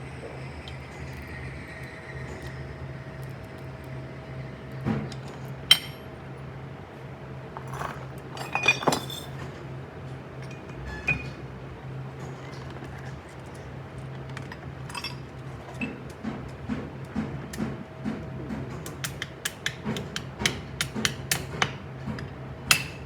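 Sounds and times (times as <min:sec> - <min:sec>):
metal tools clinking: 0:07.6 - 0:09.5.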